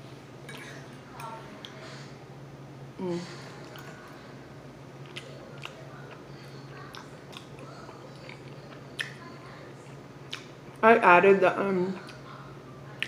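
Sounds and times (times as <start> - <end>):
steady low hum: 0.0 - 13.0
person chewing food: 3.5 - 10.8.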